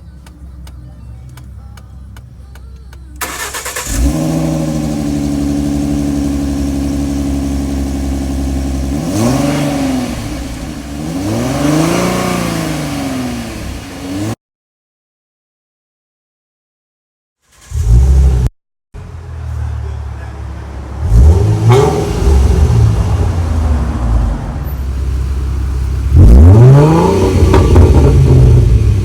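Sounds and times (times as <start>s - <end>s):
car engine starting and idling: 0.0s - 14.4s, 17.5s - 29.0s
engine revving: 3.2s - 14.4s, 17.5s - 29.0s.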